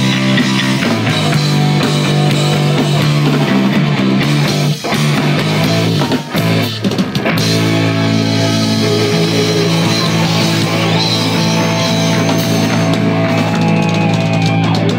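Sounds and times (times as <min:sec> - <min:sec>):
rock band playing: 0:00.0 - 0:14.9
electric guitar chord: 0:07.4 - 0:13.4.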